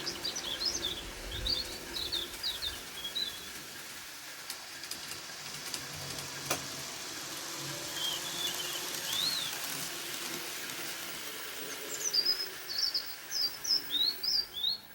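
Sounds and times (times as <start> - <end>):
small birds chirping: 0.0 - 4.2, 7.9 - 9.8, 10.6 - 14.9
steady hiss: 0.0 - 14.9.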